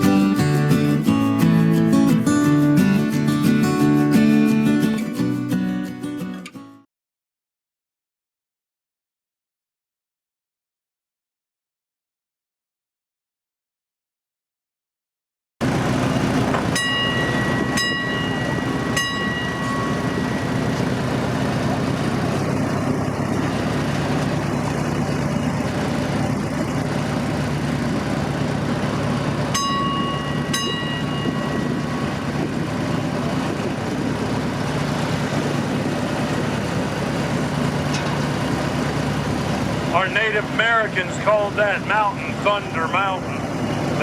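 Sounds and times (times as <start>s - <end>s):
train engine drone: 15.6s - 44.0s
bell ringing: 16.7s - 21.1s, 29.5s - 32.3s.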